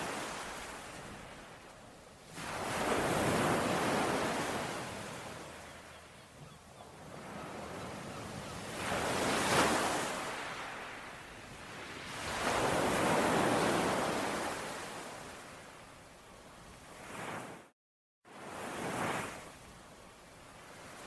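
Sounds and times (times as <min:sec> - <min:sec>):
ocean waves breaking: 0:00.0 - 0:01.6, 0:02.2 - 0:15.6.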